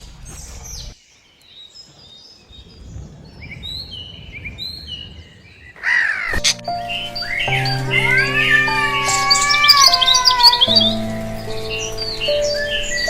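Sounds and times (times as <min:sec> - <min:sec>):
loud wavering bird call: 0:06.1 - 0:13.0
high bird chirps: 0:06.4 - 0:13.0
low rumble of outdoor noise: 0:06.5 - 0:13.0.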